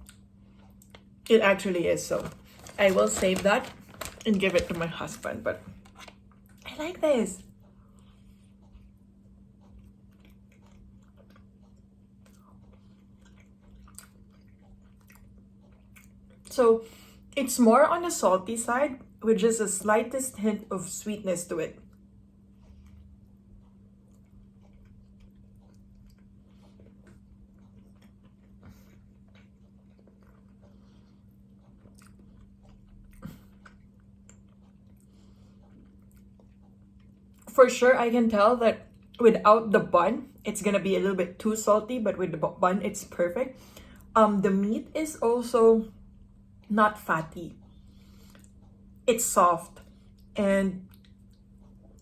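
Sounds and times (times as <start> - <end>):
steady low hum: 0.0 - 52.0
wet chewing mouth clicks: 7.8 - 16.5, 22.6 - 37.5, 49.8 - 52.0.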